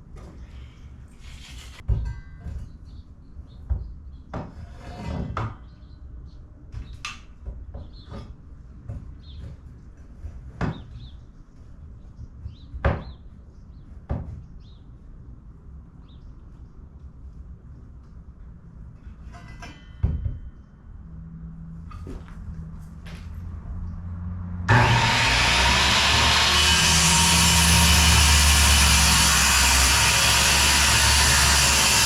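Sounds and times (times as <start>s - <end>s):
scraping: 24.7s - 32.0s.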